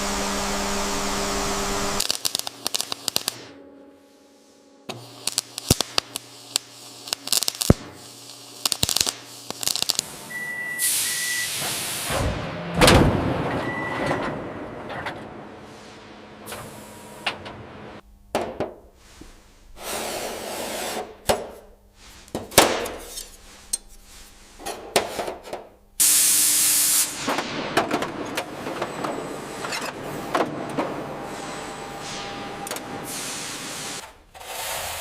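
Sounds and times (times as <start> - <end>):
loud hissing burst: 10.8 - 12.1, 26.0 - 27.3, 33.0 - 34.0
spraying hiss: 10.8 - 12.1, 26.0 - 27.3, 33.0 - 35.0.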